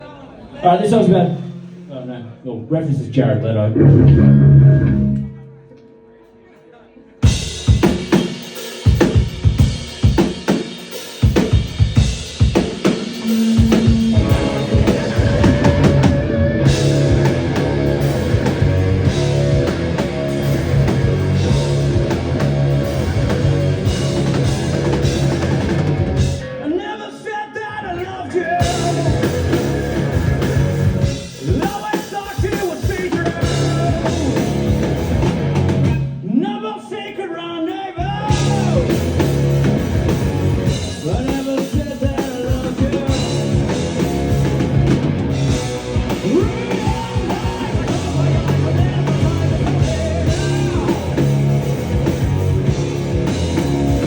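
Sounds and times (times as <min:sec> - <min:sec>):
drums hitting: 0:03.8 - 0:05.4, 0:07.2 - 0:26.5, 0:28.6 - 0:36.2, 0:38.0 - 0:54.0
rock band playing live: 0:03.8 - 0:05.4, 0:07.2 - 0:26.9, 0:28.0 - 0:36.2, 0:38.1 - 0:54.0.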